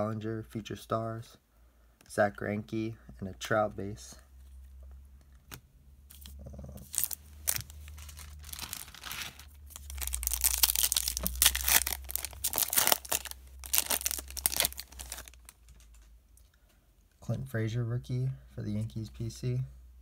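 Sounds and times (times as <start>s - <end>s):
wrapper crackling and rustling: 6.1s - 16.1s.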